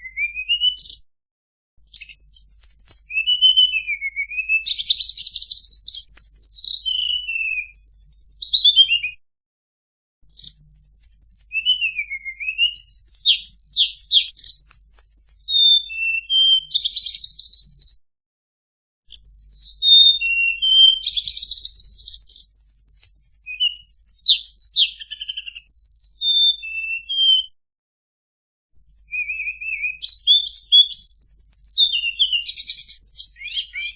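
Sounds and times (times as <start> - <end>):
bird song chirps and trills: 0.0 - 1.0, 1.8 - 9.2, 10.3 - 18.0, 19.1 - 27.5, 28.8 - 33.9.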